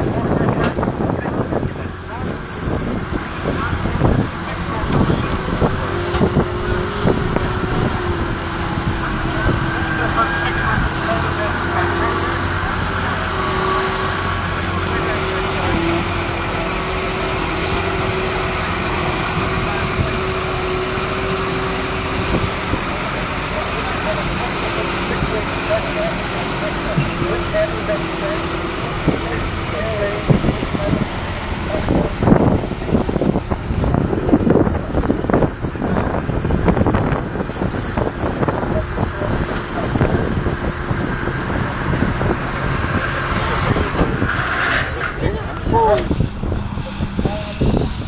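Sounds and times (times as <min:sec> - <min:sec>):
diesel engine running: 0:00.0 - 0:48.0
steady whine: 0:00.0 - 0:48.0
wind buffeting microphone: 0:00.0 - 0:48.0.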